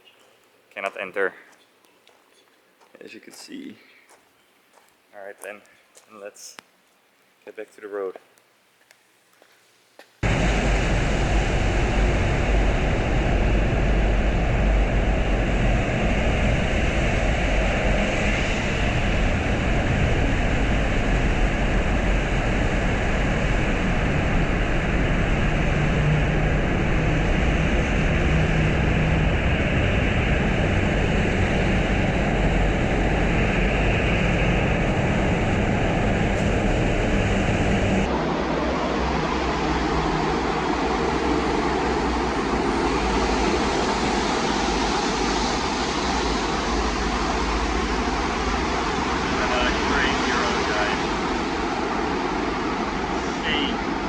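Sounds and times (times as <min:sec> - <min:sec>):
wind and rain on microphone: 0:10.2 - 0:54.0.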